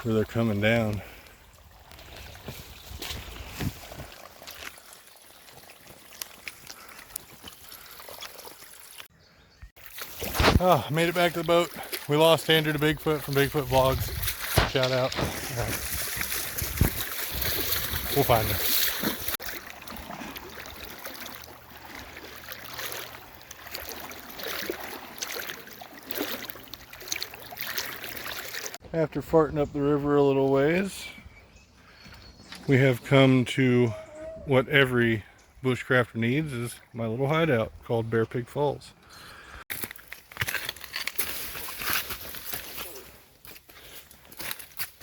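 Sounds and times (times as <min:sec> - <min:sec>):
spring water trickling over rocks: 0:00.4 - 0:09.1, 0:09.8 - 0:28.8.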